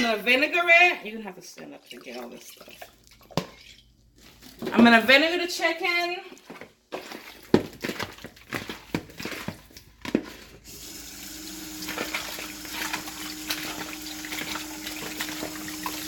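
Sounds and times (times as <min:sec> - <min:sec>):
tap water running into sink: 0:10.7 - 0:16.0.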